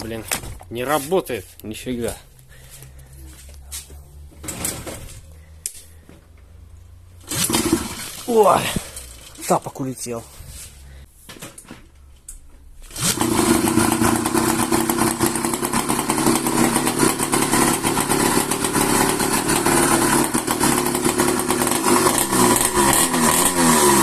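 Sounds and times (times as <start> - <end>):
two-stroke moped engine running: 7.2 - 9.4, 12.9 - 24.0.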